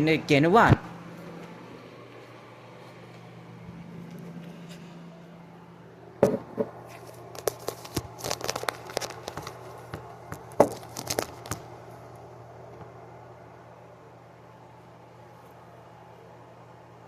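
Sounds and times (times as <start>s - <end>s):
faint low hum: 0.0s - 17.0s
plastic parts clicking and rattling: 7.3s - 9.6s.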